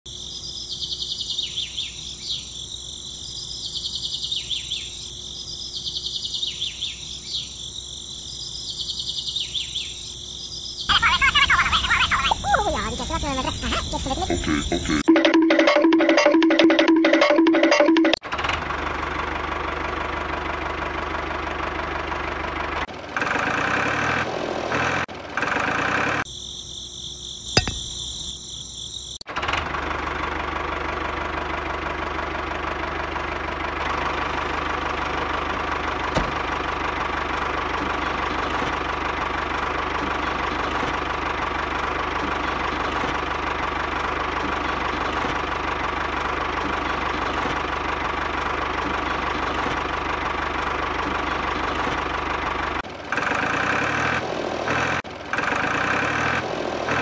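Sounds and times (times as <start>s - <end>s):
engine idling with knocking: 18.2s - 24.1s, 29.3s - 56.3s.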